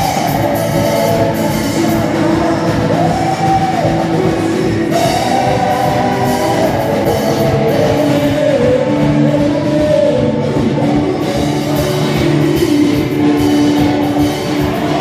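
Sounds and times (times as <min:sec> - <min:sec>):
drum kit: 0:00.0 - 0:15.0
electric guitar: 0:00.0 - 0:15.0.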